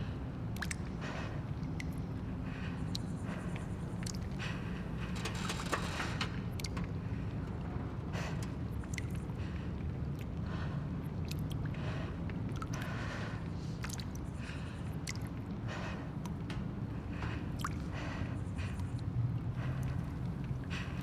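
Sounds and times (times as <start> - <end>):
rustling and creaking: 4.8 - 7.0.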